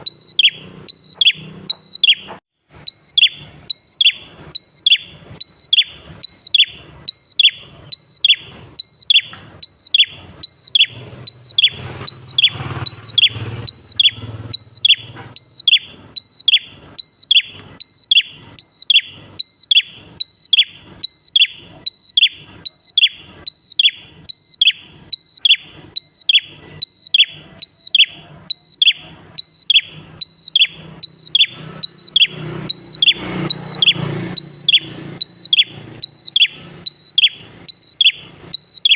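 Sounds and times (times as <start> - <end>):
bird calling: 0.0 - 38.9.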